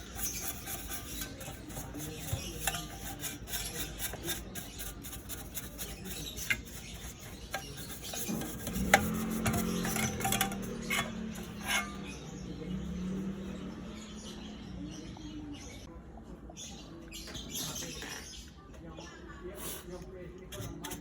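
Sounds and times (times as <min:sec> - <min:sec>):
rubbing and scraping: 0:00.0 - 0:12.2, 0:20.5 - 0:21.0.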